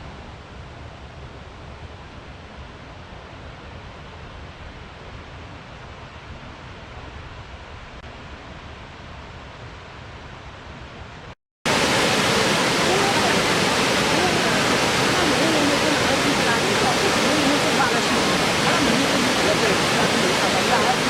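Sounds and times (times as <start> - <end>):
waterfall roaring: 11.7 - 21.0.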